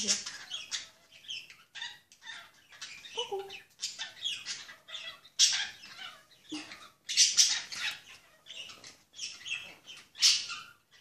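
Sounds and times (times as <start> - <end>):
pet birds chirping: 0.0 - 11.0.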